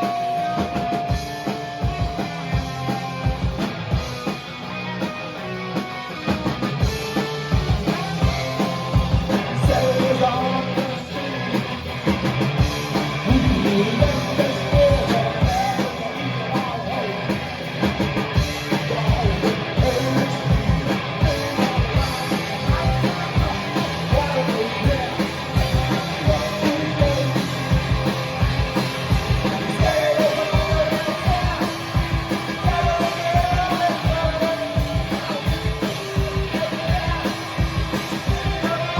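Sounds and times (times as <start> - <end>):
driving drum beat: 0.0 - 38.9
rock band playing live: 0.0 - 38.9
person singing: 9.4 - 11.5, 13.3 - 17.3, 18.8 - 27.7, 29.5 - 37.6, 38.2 - 38.9.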